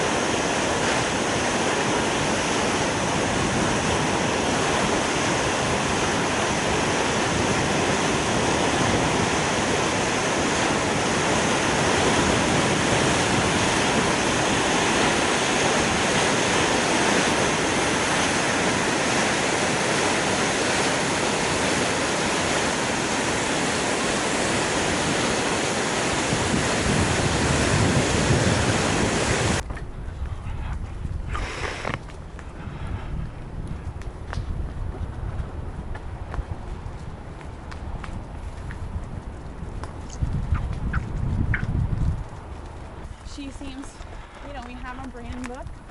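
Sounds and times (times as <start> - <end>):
waterfall rushing: 0.0 - 29.6.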